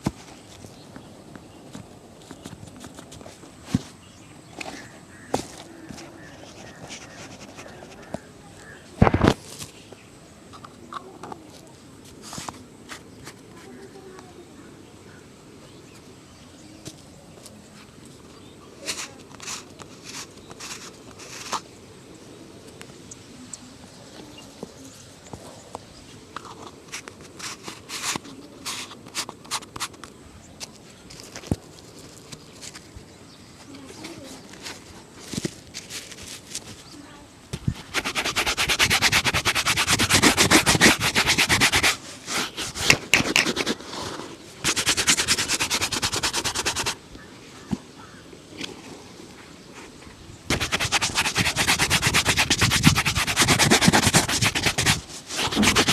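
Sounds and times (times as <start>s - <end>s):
scratchy shoe shine rubbing: 6.2s - 8.1s, 37.7s - 47.0s, 50.5s - 55.9s.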